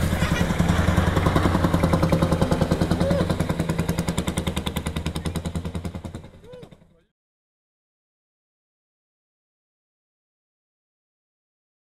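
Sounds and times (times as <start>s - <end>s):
old tractor engine running: 0.0s - 7.1s.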